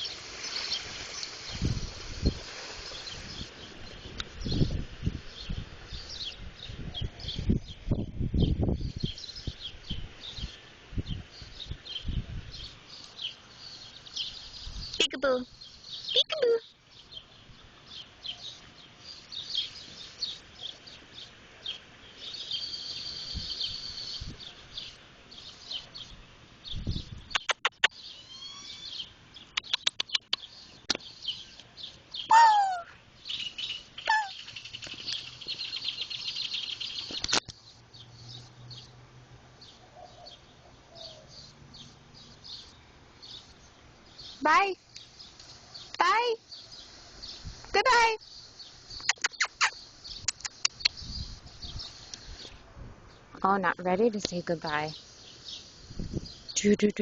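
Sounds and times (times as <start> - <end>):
small birds chirping and twittering: 0.0 - 57.0
sharp clicks: 27.3 - 28.0, 29.6 - 31.0, 37.1 - 37.6, 49.0 - 51.0
loud falling bird call: 28.0 - 29.0
high trilling: 49.0 - 49.8.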